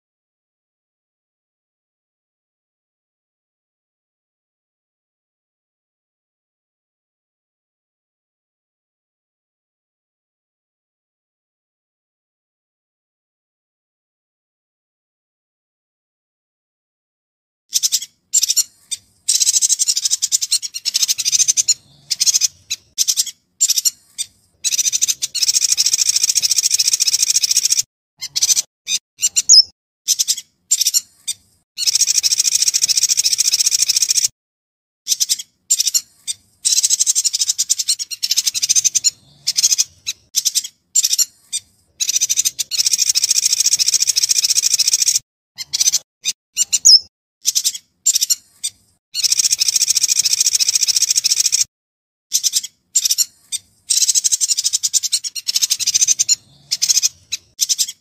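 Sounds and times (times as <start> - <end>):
bird fast high chirping: 17.7 - 34.3, 35.1 - 51.7, 52.3 - 58.0
short bird calls: 17.7 - 34.3.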